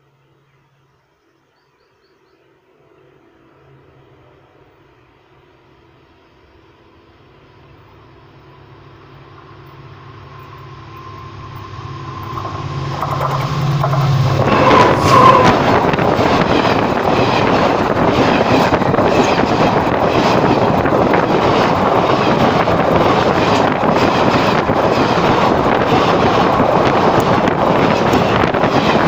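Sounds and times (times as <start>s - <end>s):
train wheels roaring on rails: 2.4s - 29.0s
rush of air: 11.3s - 27.4s.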